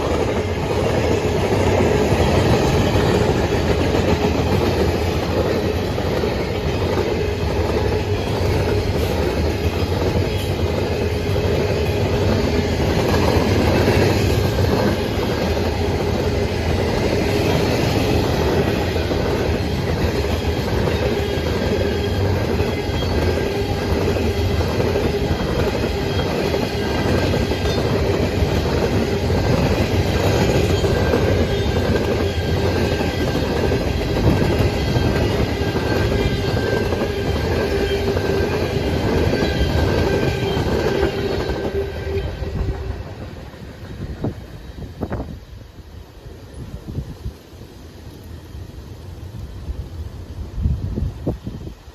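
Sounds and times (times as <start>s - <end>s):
train wheels clicking over rail joints: 0.0s - 45.4s
wheel squeal on rail: 19.8s - 45.3s.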